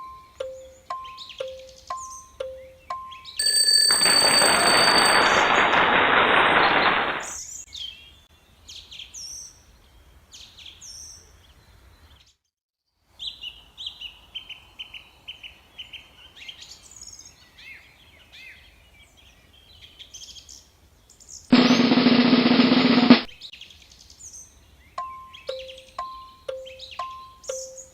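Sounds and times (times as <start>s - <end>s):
burst of noise: 4.3s - 7.4s, 21.5s - 23.3s.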